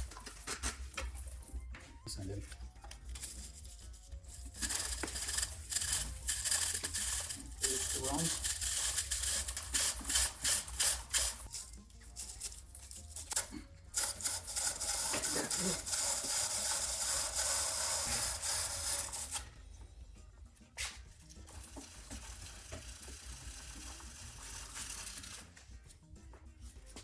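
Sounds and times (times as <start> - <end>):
aerosol spray can hissing: 4.5 - 11.5, 14.0 - 19.4.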